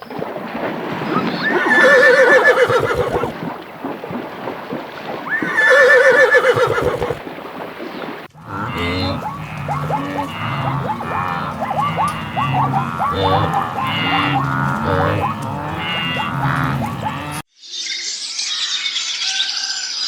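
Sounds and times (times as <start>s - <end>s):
horse whinnying: 1.1s - 3.4s, 5.3s - 7.2s, 8.4s - 17.4s.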